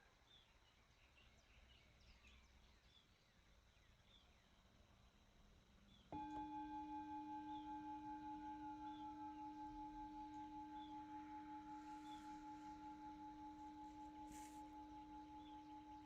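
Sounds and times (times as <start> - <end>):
singing bowl ringing: 6.2 - 16.0.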